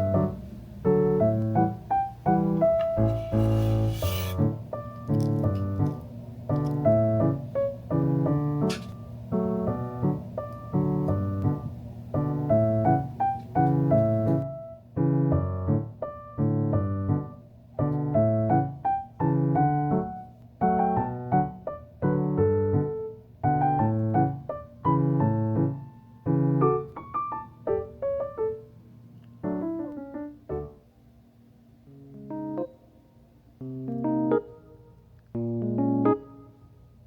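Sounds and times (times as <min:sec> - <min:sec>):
light music with repeated chords: 0:31.9 - 0:37.0.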